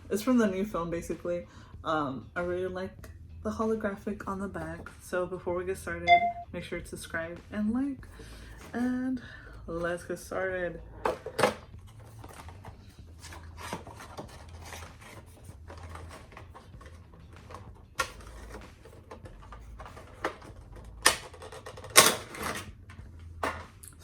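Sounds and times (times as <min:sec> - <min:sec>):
packaging clicks and rustles: 0:11.0 - 0:24.0.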